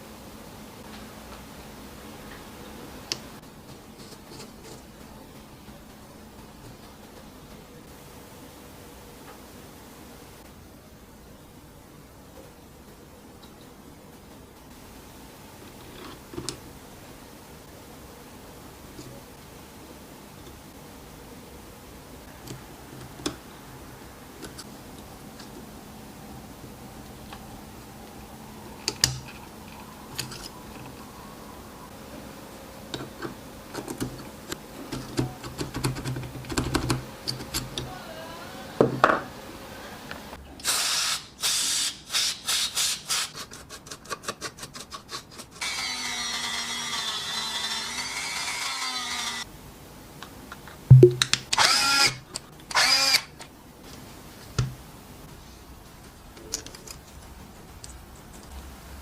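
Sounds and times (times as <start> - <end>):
cordless drill motor whirring: 45.6 - 49.5, 51.5 - 53.4.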